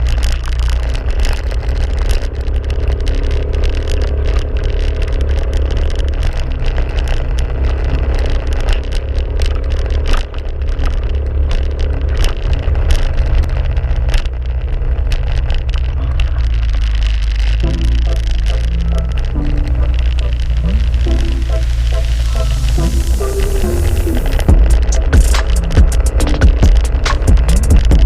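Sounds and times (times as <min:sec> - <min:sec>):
clicks and rattles: 0:00.0 - 0:22.8, 0:24.3 - 0:28.0
vehicle engine rumble: 0:00.0 - 0:28.0.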